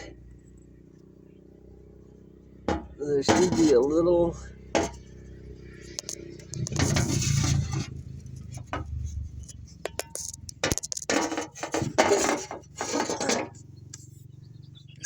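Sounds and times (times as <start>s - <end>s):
metal scraping: 2.7s - 4.1s, 4.7s - 5.1s, 5.8s - 13.7s
metal tools clinking: 9.5s - 13.6s.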